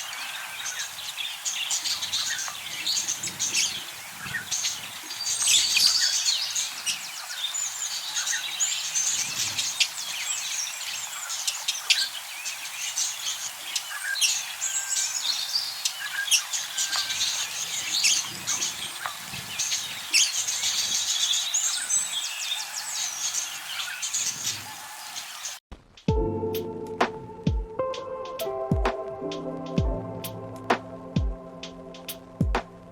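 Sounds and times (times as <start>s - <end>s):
budgerigars chattering: 0.0s - 25.6s.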